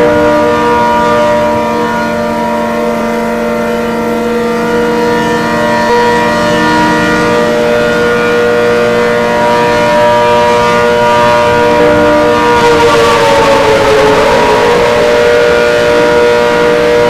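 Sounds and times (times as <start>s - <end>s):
outdoor warning siren: 0.0s - 17.0s.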